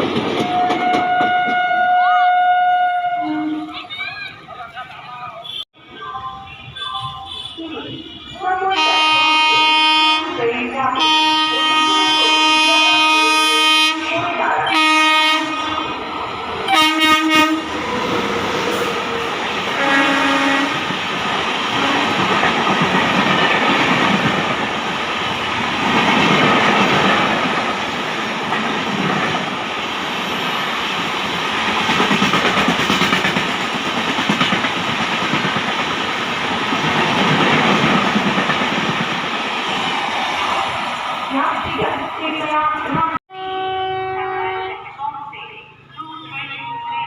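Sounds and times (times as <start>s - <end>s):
train coaches clattering past: 0.0s - 44.2s
train horn blasts: 0.4s - 3.8s, 6.8s - 16.0s, 16.7s - 17.8s, 19.8s - 20.8s, 43.3s - 45.0s.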